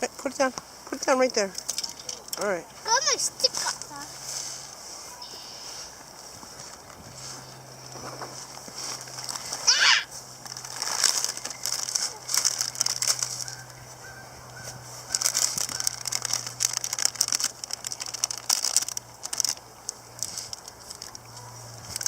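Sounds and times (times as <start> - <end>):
crackling and rustling: 0.0 - 22.0
geese honking: 9.2 - 10.1, 11.4 - 16.2.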